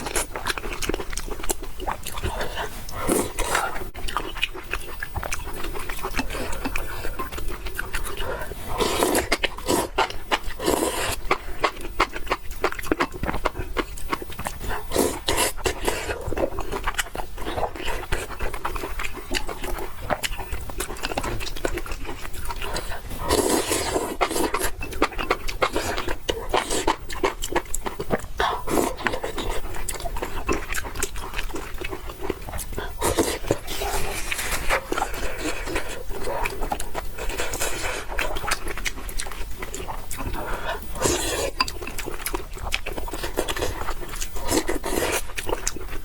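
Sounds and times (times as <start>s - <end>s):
slurping noodles: 2.0s - 4.0s, 8.2s - 11.5s, 14.9s - 16.5s, 22.7s - 24.8s, 32.8s - 38.9s, 39.7s - 42.2s, 43.1s - 45.5s.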